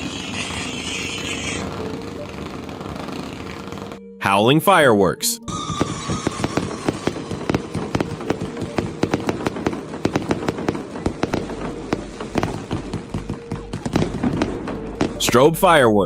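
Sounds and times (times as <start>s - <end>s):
fireworks crackling and popping: 0.0s - 4.0s, 5.5s - 15.5s.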